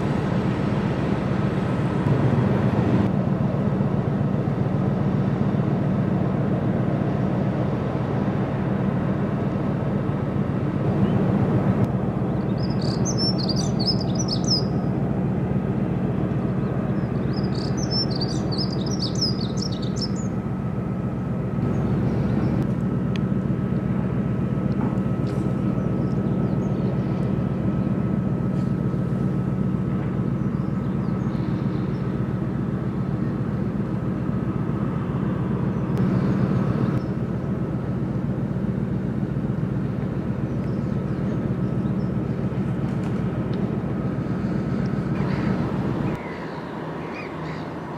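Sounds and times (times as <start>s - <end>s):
boat engine drone: 0.0s - 47.9s
small birds chirping: 12.3s - 14.9s, 16.6s - 20.4s, 25.6s - 28.0s, 30.3s - 32.2s, 40.4s - 42.5s, 44.8s - 47.9s.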